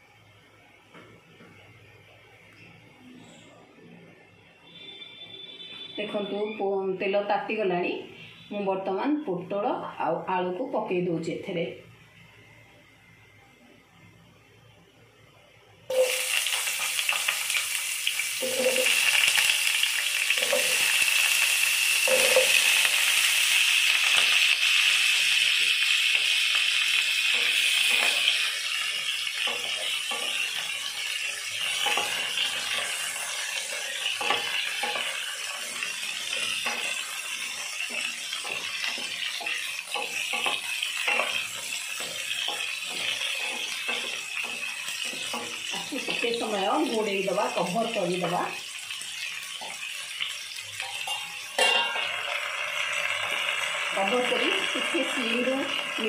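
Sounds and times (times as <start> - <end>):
vegetables sizzling in hot oil: 15.9 - 56.0
spatula scraping a pan: 18.4 - 19.4, 22.0 - 22.9, 27.2 - 50.1.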